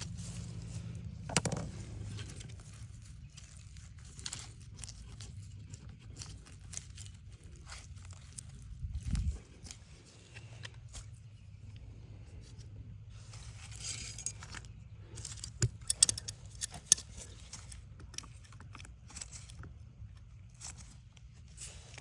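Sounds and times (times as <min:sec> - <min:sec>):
faint low hum: 0:00.0 - 0:22.0
metal tools clicking and scraping: 0:13.8 - 0:19.4
sharp metallic clicks: 0:15.6 - 0:17.0.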